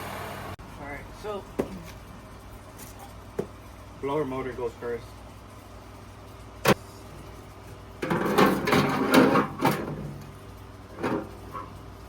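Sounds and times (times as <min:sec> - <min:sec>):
metal scraping and clunking: 0:08.0 - 0:11.8.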